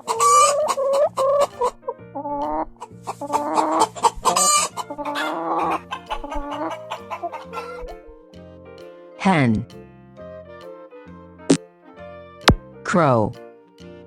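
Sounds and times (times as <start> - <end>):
hen clucking: 0.0 - 8.1
background music: 0.0 - 14.0.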